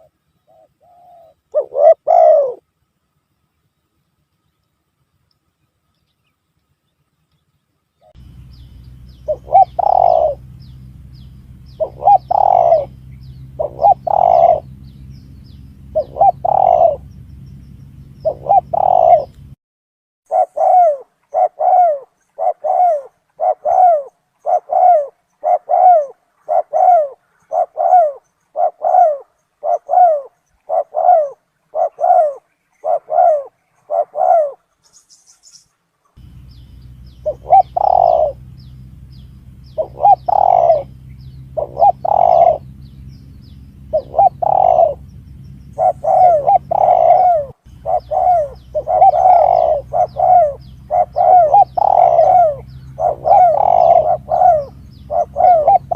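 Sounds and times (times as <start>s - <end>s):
dove cooing: 0.0s - 2.7s, 8.0s - 19.6s, 20.3s - 34.8s, 36.2s - 55.9s
steady low hum: 0.0s - 19.6s, 36.2s - 55.9s.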